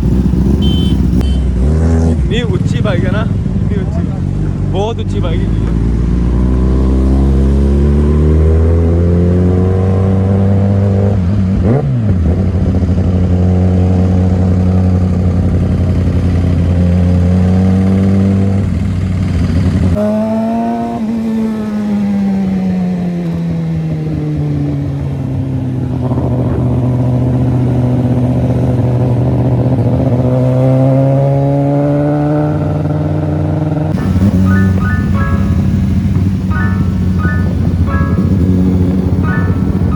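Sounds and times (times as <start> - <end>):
motorcycle engine running: 0.0 - 8.0, 11.7 - 20.1, 34.0 - 39.9.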